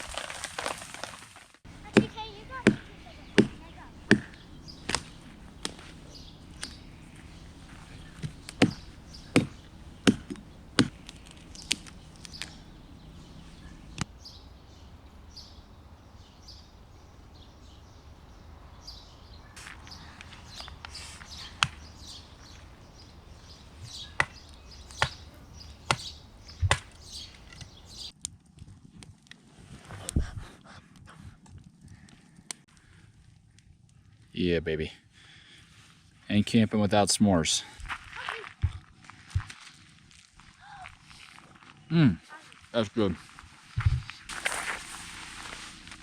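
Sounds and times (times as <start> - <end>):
campfire crackling and popping: 0.0 - 18.3, 19.6 - 28.2.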